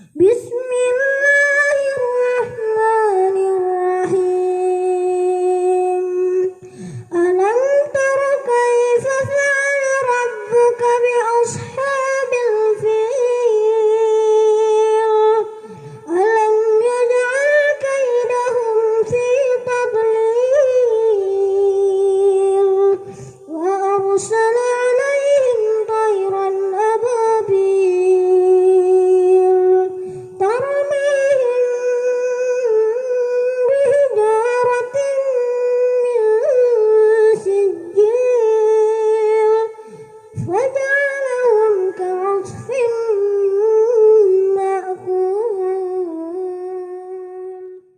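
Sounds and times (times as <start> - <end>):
boy chanting melodically: 0.0 - 47.9.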